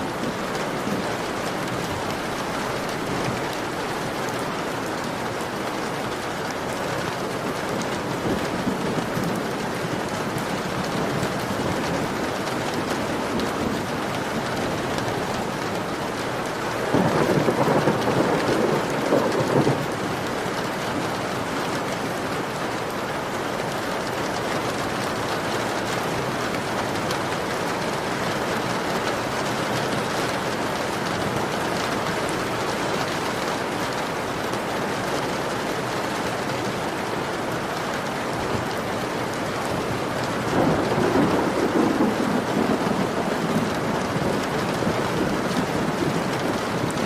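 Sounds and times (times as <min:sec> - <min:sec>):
heavy rain on a window: 0:00.0 - 0:47.0
low rumble of thunder: 0:16.8 - 0:20.2, 0:40.4 - 0:47.0.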